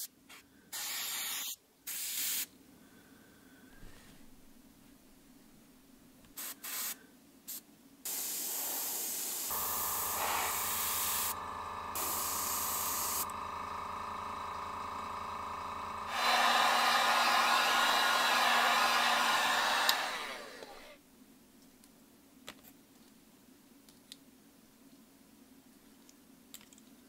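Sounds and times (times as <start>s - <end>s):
airbrush spraying: 0.8s - 2.5s, 6.4s - 13.3s
air compressor motor running: 8.1s - 21.0s
hot-air dryer blowing: 8.1s - 21.0s.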